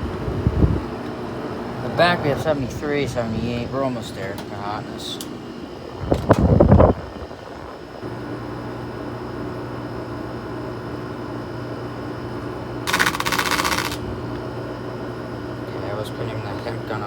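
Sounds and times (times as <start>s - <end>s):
air conditioner humming: 0.0s - 17.0s
rasping scratch against fan: 12.9s - 14.0s.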